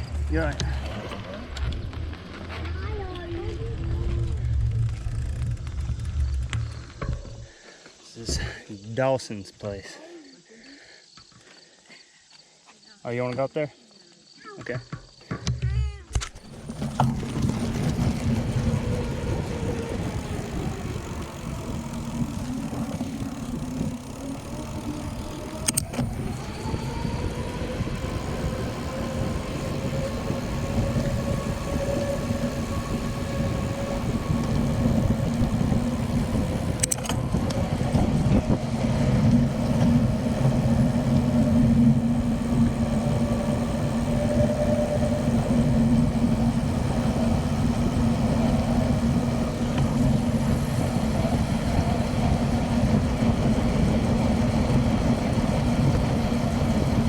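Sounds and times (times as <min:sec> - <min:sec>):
car engine running: 0:00.0 - 0:07.6, 0:16.4 - 0:57.0
sharp clicks: 0:25.5 - 0:26.1, 0:36.8 - 0:37.6.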